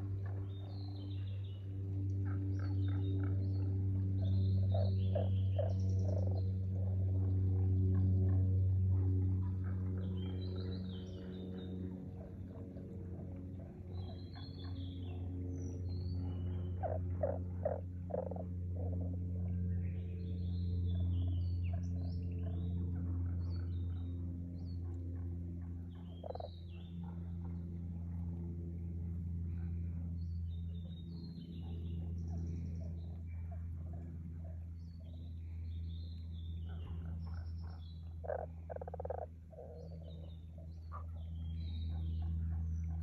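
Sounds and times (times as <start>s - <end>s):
frogs calling: 4.2s - 7.0s, 16.6s - 19.2s, 26.1s - 26.6s, 36.8s - 41.2s
small birds chirping: 25.9s - 27.8s, 29.5s - 43.0s.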